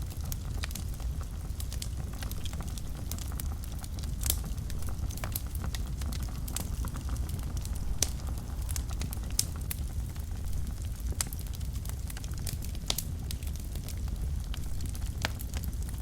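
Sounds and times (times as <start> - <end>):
wood fire crackling and popping: 0.0 - 16.0.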